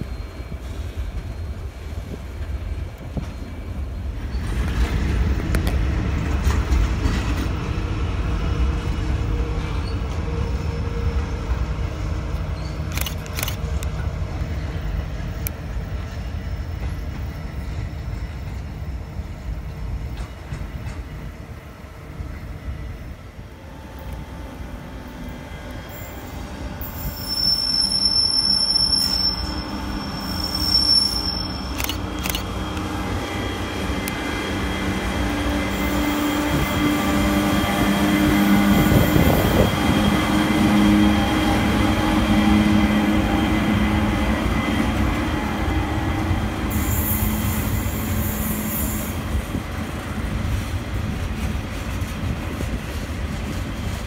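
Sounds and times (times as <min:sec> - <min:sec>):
wheels rumbling on rail: 0:00.0 - 0:54.0
high wheel squeal: 0:25.9 - 0:37.1.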